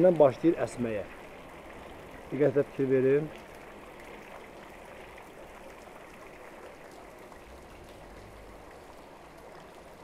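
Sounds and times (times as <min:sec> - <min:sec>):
waterfall splashing into pool: 0:02.3 - 0:10.0.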